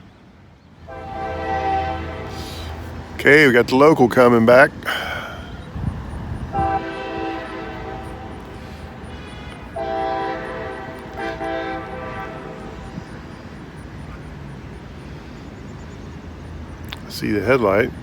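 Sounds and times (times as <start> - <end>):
low train rumble: 0.0 - 18.0
locomotive air horn blasts: 0.9 - 3.6, 6.5 - 13.5.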